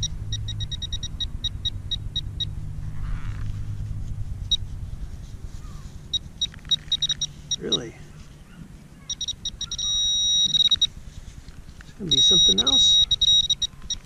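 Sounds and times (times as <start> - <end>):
pinpointer short high beeps: 0.0 - 2.5, 6.1 - 7.9, 9.1 - 10.9, 12.1 - 14.0
low rumble: 0.0 - 9.6.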